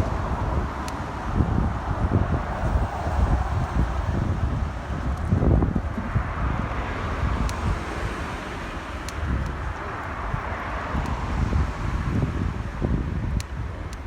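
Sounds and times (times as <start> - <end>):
steady rushing noise: 0.0 - 14.0
wind buffeting microphone: 0.0 - 14.0
faint ticks: 7.4 - 7.6.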